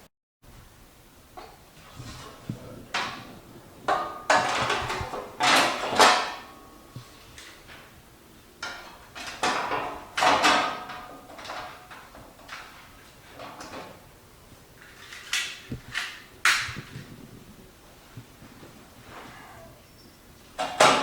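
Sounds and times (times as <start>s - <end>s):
parts rattling: 2.1s - 6.5s
plastic and metal parts clattering: 3.9s - 6.5s, 8.6s - 14.0s, 14.8s - 17.1s.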